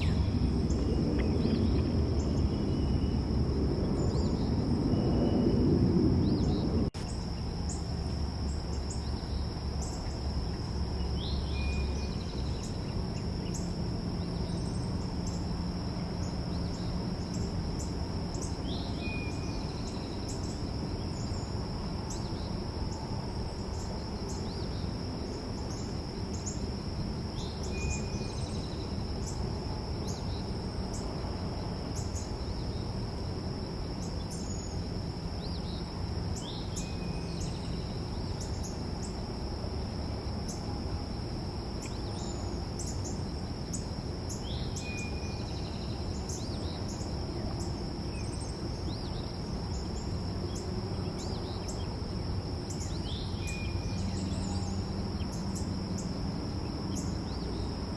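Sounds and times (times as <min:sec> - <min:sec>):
low background rumble: 0:00.0 - 0:57.9.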